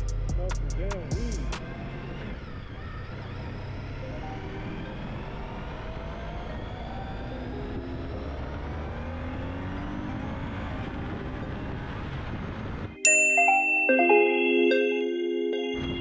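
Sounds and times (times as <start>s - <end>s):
engine accelerating: 0.2s - 13.0s
road and wind noise: 0.8s - 13.0s.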